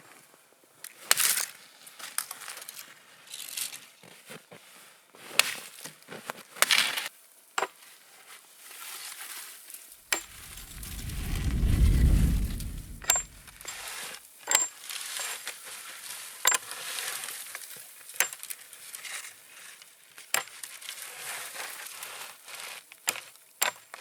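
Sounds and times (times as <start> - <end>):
low rumble: 10.2 - 13.6.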